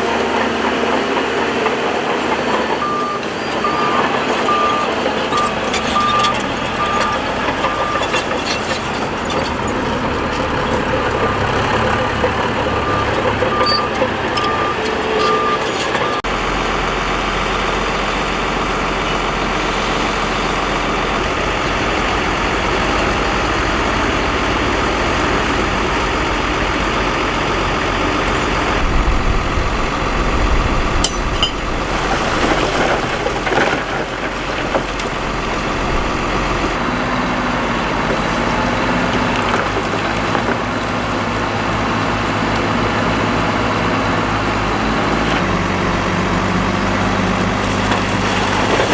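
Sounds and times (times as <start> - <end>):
heavy machinery running: 0.0 - 48.9
reversing alarm beeping: 2.5 - 8.7, 11.9 - 16.3.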